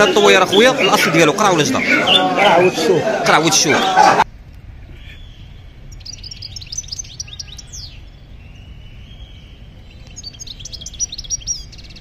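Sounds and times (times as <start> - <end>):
small birds chirping: 0.0 - 2.8, 4.9 - 12.0
steady low rumble: 4.2 - 12.0.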